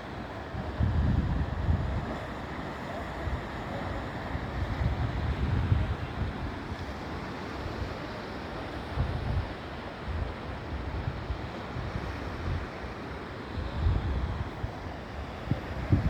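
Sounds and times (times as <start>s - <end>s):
wind buffeting microphone: 0.5s - 2.3s, 4.5s - 6.7s, 13.6s - 16.0s.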